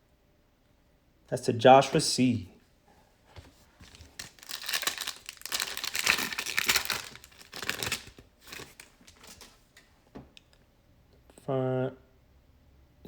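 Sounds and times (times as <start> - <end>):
plastic wrapper tearing and crinkling: 3.8 - 9.6.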